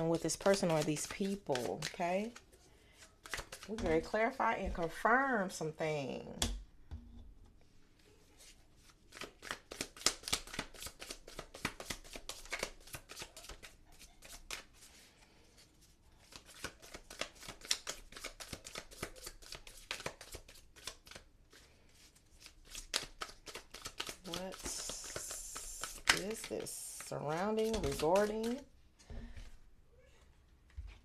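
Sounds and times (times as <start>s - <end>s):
deck of cards being shuffled: 0.0s - 2.4s, 3.2s - 3.8s, 22.0s - 28.6s.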